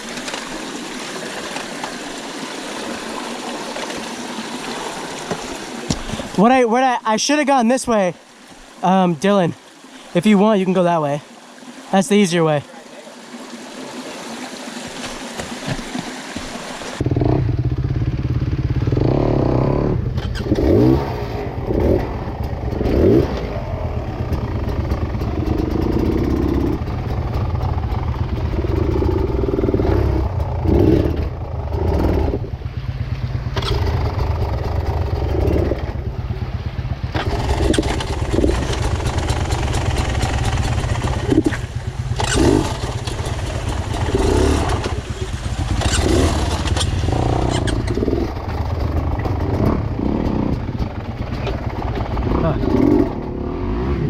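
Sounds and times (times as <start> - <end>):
dirt bike engine revving: 17.0 - 54.0.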